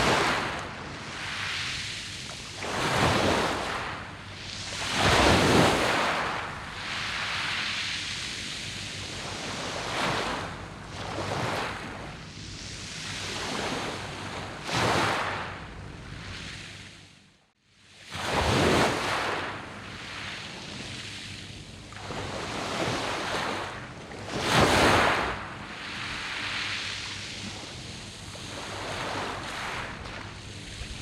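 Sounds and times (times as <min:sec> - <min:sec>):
waves washing on pebbles: 0:00.0 - 0:11.8, 0:22.1 - 0:31.0.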